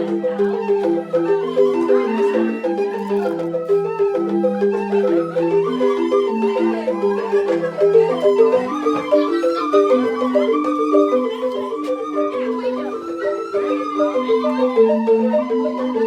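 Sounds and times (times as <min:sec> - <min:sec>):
bamboo xylophones playing: 0:00.0 - 0:16.0.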